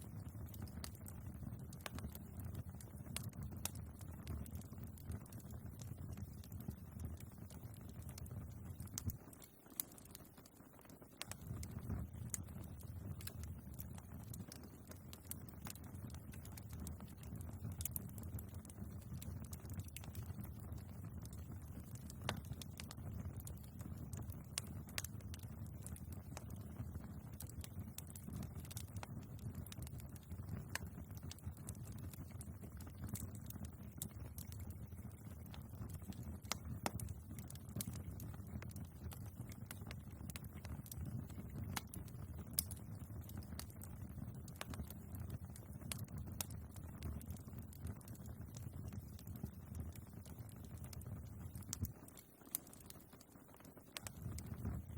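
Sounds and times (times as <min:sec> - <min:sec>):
logs crackling and popping: 0:00.0 - 0:54.9
fire flames rumbling: 0:11.2 - 0:52.8, 0:53.8 - 0:54.9.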